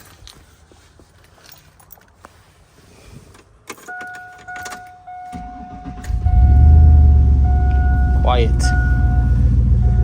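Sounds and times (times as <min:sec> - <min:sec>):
electronic warning tone: 0:05.0 - 0:10.0.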